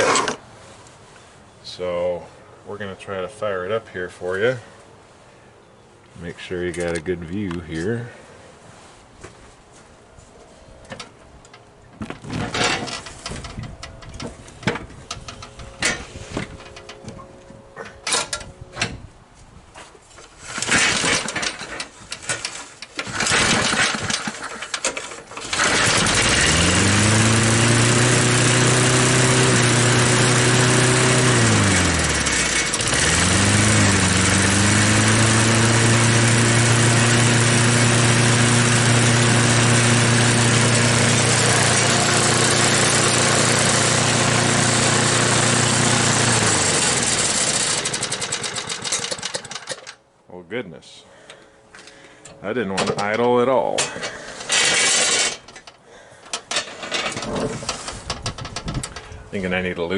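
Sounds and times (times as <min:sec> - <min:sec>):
mower engine running: 0:00.0 - 0:00.4, 0:20.4 - 0:50.0, 0:54.0 - 0:55.6
recoil starter pulls: 0:00.0 - 0:00.4, 0:10.9 - 0:17.2, 0:20.2 - 0:50.0, 0:51.8 - 0:59.3.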